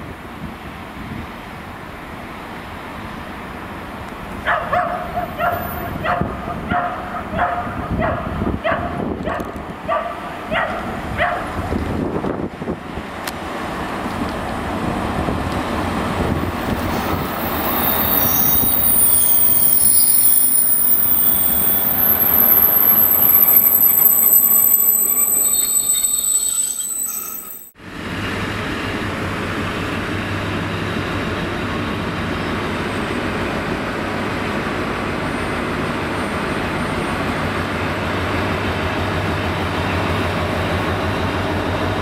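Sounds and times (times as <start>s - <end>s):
diesel locomotive rumble: 0.0s - 42.0s
dog barking: 4.4s - 11.5s
high-pitched wheel squeal: 17.1s - 27.8s.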